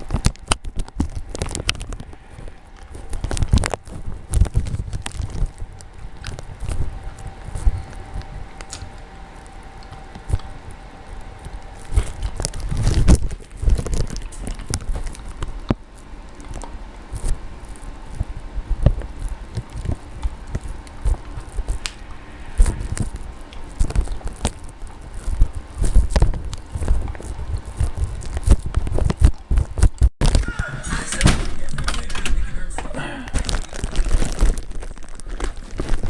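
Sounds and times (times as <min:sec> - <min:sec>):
wind buffeting microphone: 0:00.0 - 0:30.1
crackles and clicks: 0:00.0 - 0:36.0.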